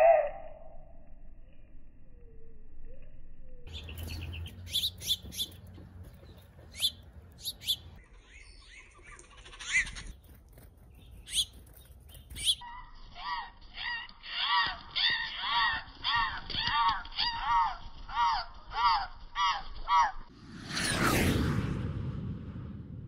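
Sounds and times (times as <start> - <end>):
harsh low bird call: 0.0 - 0.9
small birds chirping: 3.5 - 13.2.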